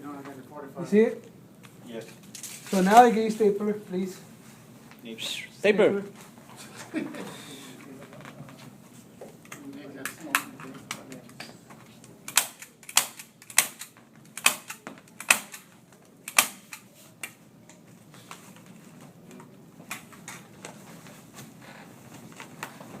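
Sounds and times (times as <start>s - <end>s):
hand stapler snapping: 12.2s - 17.4s.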